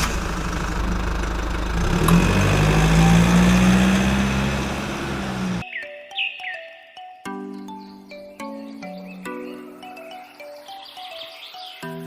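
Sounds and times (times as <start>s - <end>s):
vehicle engine revving: 0.0s - 5.6s.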